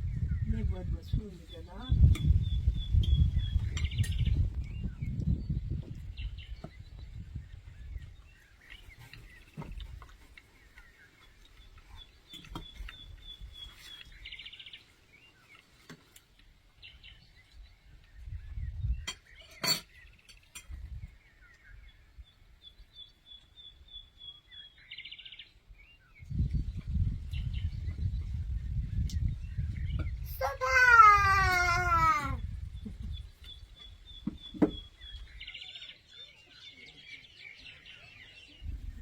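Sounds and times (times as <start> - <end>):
songbird singing: 0.0 - 39.0
faint bird chirps: 0.1 - 15.9.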